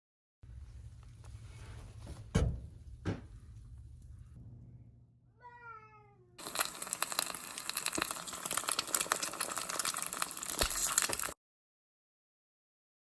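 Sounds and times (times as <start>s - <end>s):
dense crackling with sharp clicks: 6.4s - 11.4s.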